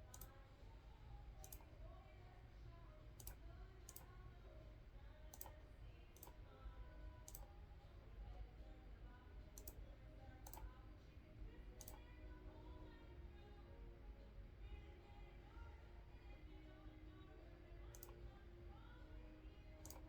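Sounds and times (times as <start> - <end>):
computer mouse clicks: 0.0 - 0.5, 1.4 - 1.7, 3.2 - 4.2, 5.3 - 6.4, 7.2 - 7.5, 9.5 - 9.8, 10.4 - 10.8, 11.8 - 12.2, 17.9 - 18.2, 19.8 - 20.0.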